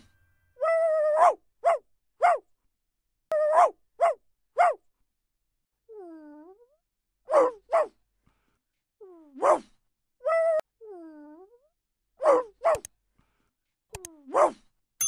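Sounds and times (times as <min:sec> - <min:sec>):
puppy barking: 0:01.2 - 0:02.4, 0:03.4 - 0:04.8, 0:07.3 - 0:08.0, 0:12.2 - 0:12.9.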